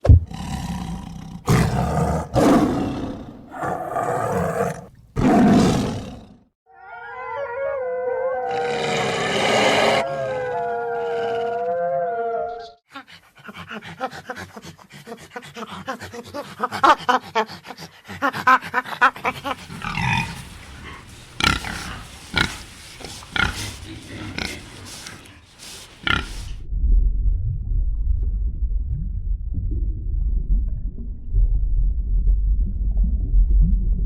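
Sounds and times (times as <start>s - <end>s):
animal roars: 0.3s - 6.4s, 7.4s - 12.8s, 19.3s - 26.6s
drawn-out wavering animal calls: 6.8s - 12.8s
fast short animal pulses: 19.1s - 26.6s.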